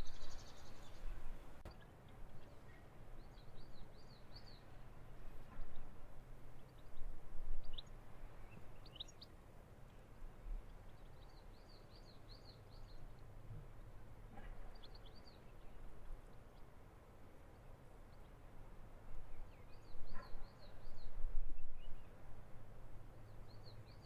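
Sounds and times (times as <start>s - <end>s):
small birds chirping: 0.0s - 5.9s, 7.6s - 10.1s, 10.7s - 16.7s.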